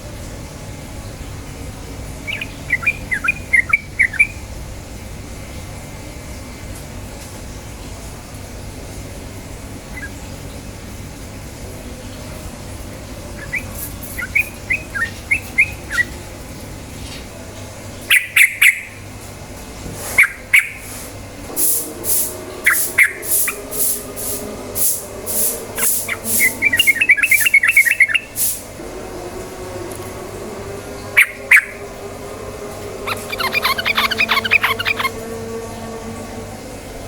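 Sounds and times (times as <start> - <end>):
bird chirping and calling: 2.2 - 4.4, 13.4 - 16.2, 22.7 - 24.0, 25.8 - 28.5, 32.9 - 35.2
sharp high hissy strokes: 20.8 - 28.7
steady low hum: 21.2 - 37.0.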